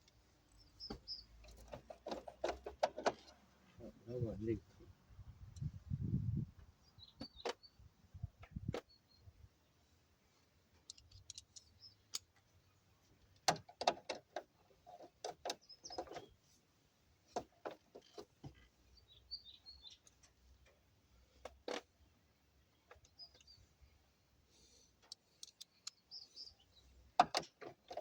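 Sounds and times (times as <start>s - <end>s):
faint bird chirps: 0.5s - 1.4s, 6.8s - 9.5s, 11.1s - 12.8s, 18.6s - 20.1s, 22.8s - 24.0s, 24.7s - 27.0s
small tools clicking and knocking: 10.8s - 12.5s, 25.0s - 26.2s.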